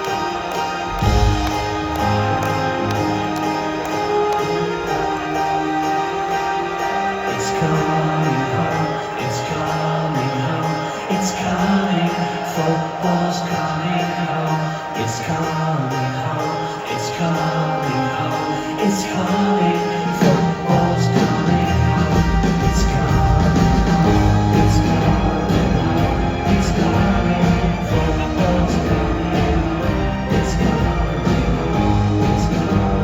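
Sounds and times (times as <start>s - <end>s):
drums: 0.0s - 14.5s, 18.7s - 33.0s
live rock band playing: 0.0s - 33.0s
bass line: 21.6s - 33.0s.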